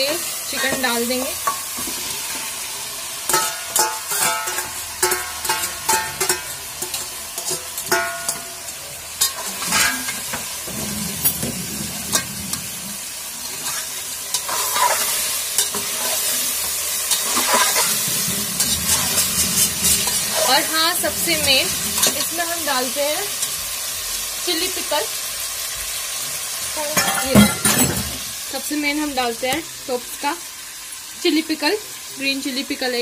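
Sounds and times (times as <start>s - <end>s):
chicken sizzling in a pot: 0.0s - 33.0s
metal spatula scraping and clinking pot: 3.3s - 12.8s, 13.4s - 22.4s.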